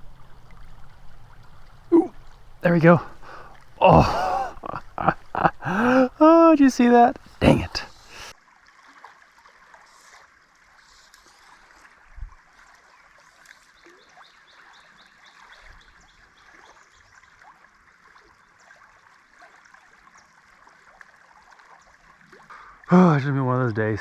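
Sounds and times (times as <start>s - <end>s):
river water flowing: 0.0s - 8.3s.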